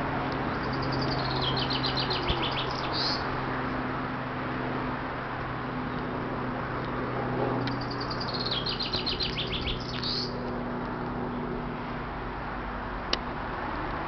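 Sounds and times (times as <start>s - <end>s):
songbird chirping: 0.5s - 3.3s, 7.6s - 10.4s.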